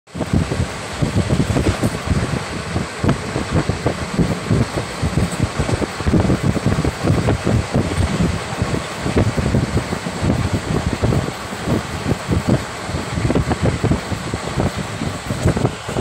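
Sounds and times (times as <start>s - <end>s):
train wheels rumbling on rails: 0.1s - 16.0s
wind buffeting microphone: 0.1s - 16.0s.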